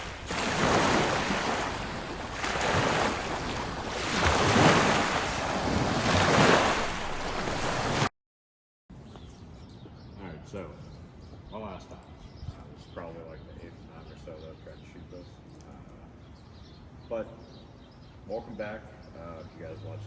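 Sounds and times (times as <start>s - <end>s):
waves washing in: 0.0s - 8.1s.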